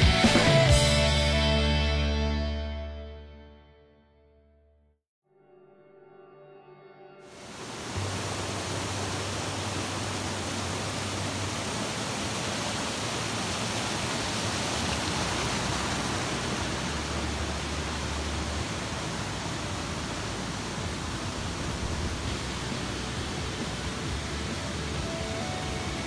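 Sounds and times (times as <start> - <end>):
stream cascading over rocks: 7.4 - 26.0.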